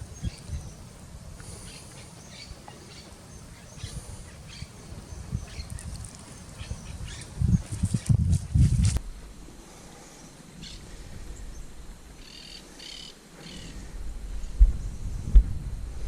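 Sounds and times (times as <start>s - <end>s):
birds chirping: 0.0s - 8.2s, 9.9s - 13.8s.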